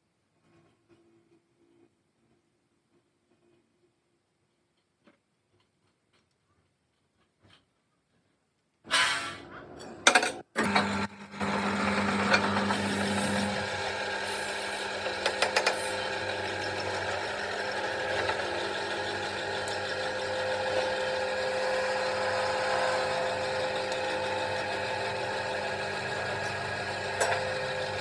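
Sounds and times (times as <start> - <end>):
motor humming: 10.6 - 28.0.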